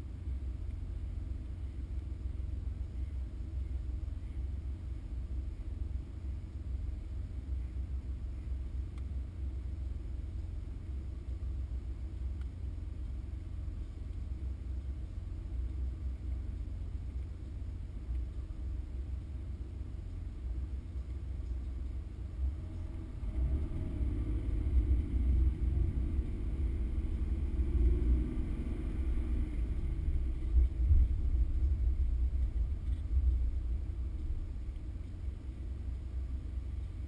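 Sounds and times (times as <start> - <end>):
car engine rumble from inside: 0.0 - 37.0.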